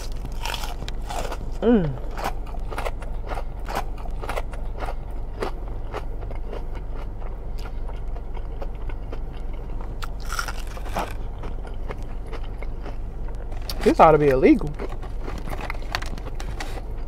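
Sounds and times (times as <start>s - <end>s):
crunchy chewing: 0.0s - 17.0s
falling voice hum: 1.6s - 2.1s.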